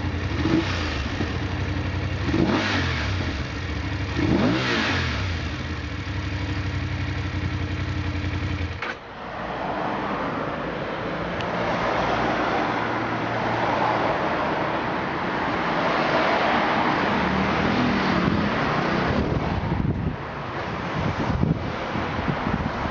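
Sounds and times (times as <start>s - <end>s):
motorcycle engine idling: 1.0s - 2.4s, 5.3s - 8.8s
rushing wind-like noise: 9.0s - 22.9s.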